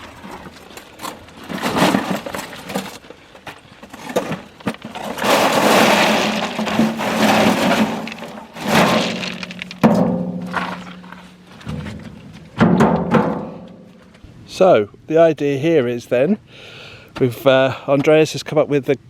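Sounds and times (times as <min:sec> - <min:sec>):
rocks and gravel clattering: 0:00.0 - 0:14.2.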